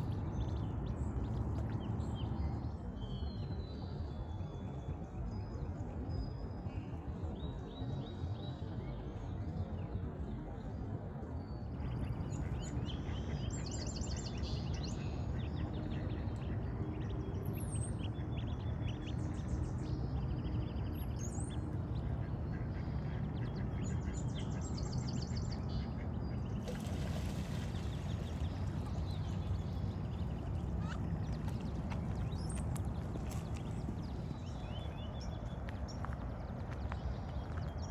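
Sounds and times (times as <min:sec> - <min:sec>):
low background rumble: 0:11.5 - 0:37.9.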